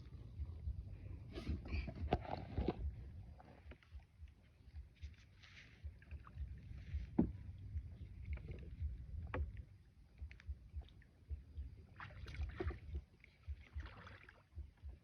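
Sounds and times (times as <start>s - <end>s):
knocks against boat hull: 7.2s - 7.4s
water sloshing: 11.8s - 14.9s
paddle splashes: 11.9s - 14.6s.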